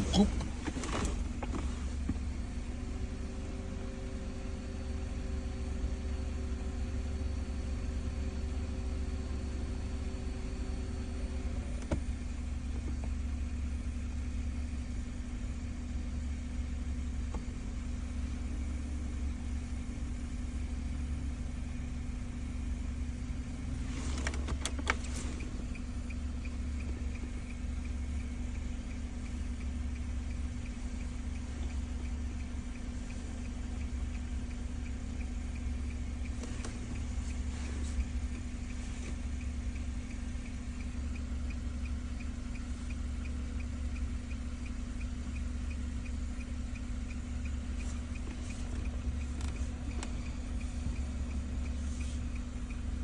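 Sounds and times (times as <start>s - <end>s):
faint steady tones: 0.0s - 53.0s
low engine hum: 0.0s - 53.0s
clicks: 28.6s - 43.3s.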